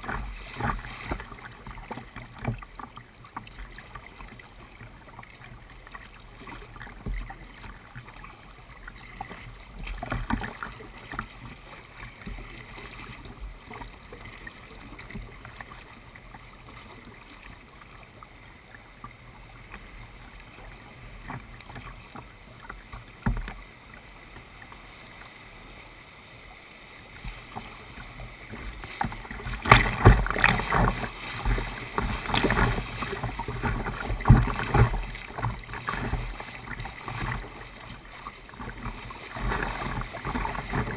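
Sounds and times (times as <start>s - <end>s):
paddle splashing in water: 0.0s - 40.9s
knocks against kayak hull: 29.0s - 36.8s.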